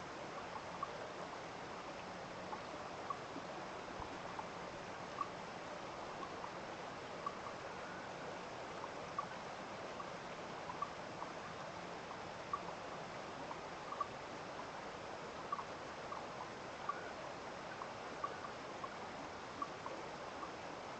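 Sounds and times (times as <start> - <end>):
stream running: 0.0 - 20.9.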